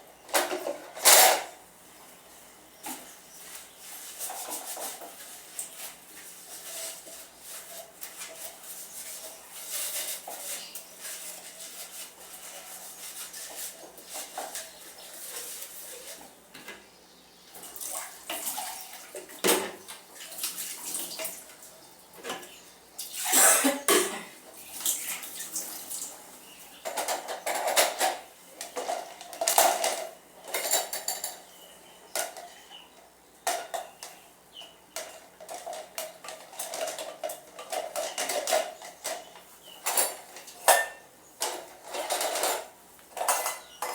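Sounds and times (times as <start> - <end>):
dishes and cutlery clattering: 0.3 - 1.6, 26.8 - 32.6, 35.0 - 43.9.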